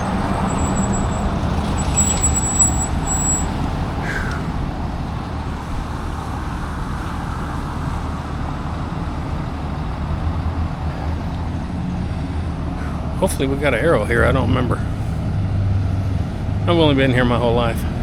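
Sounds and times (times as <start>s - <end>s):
bicycle road rumble: 0.0s - 18.0s
road traffic passing: 0.0s - 18.0s
short falling squeak: 0.5s - 3.5s.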